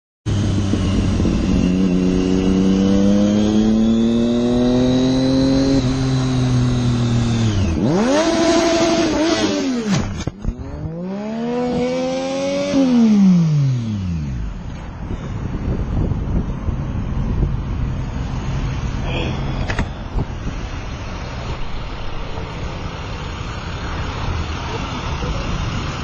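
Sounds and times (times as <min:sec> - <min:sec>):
motorcycle engine revving: 0:00.3 - 0:14.9.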